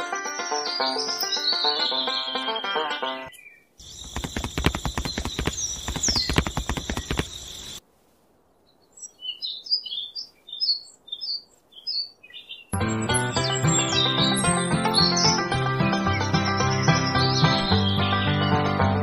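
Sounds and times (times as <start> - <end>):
birds chirping: 0.0 - 7.8, 8.6 - 19.0
rapid clatter of knocks: 3.9 - 7.8.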